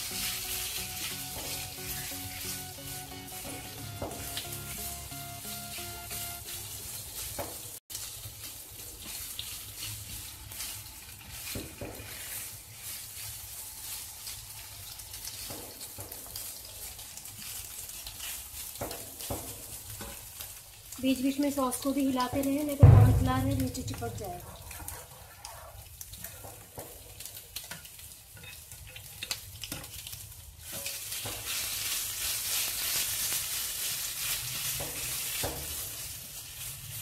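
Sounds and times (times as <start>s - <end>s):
prawns sizzling in oil: 0.0s - 37.0s
spatula scraping a pan: 9.0s - 14.6s, 17.4s - 20.5s, 24.3s - 29.9s, 30.6s - 37.0s.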